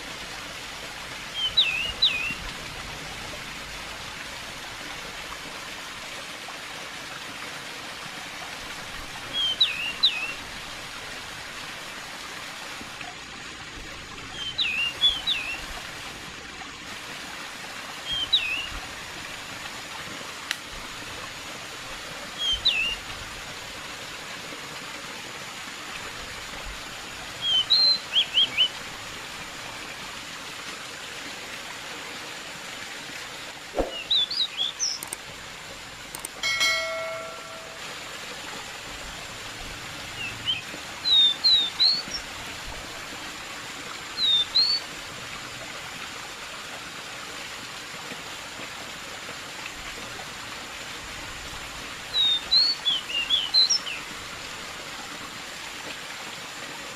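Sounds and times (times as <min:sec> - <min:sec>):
running water: 0:00.0 - 0:56.9
songbird chirping: 0:01.3 - 0:02.4, 0:33.8 - 0:35.2.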